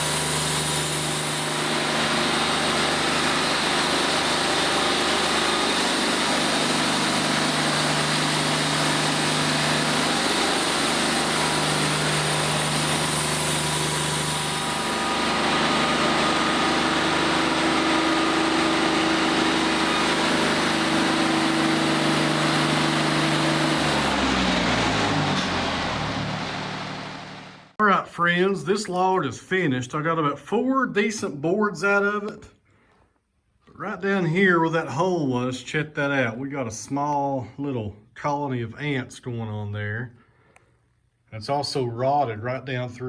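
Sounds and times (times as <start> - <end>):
sawmill engine humming: 0.0 - 28.0.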